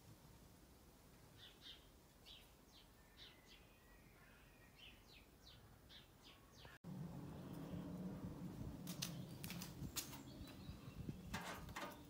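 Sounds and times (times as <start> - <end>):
faint birdsong: 1.2 - 12.0.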